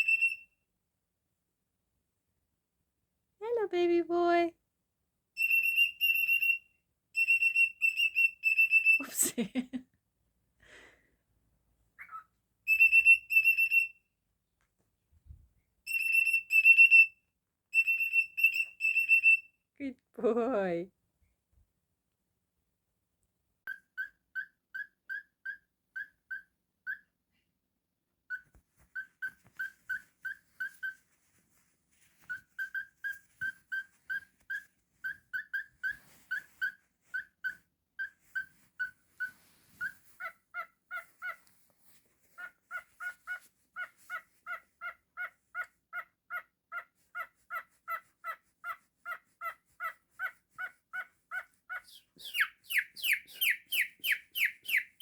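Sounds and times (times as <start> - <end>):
cockatiel chirping: 0.0 - 0.5, 5.4 - 9.2, 12.0 - 14.0, 15.9 - 19.5, 23.6 - 27.1, 28.3 - 55.0.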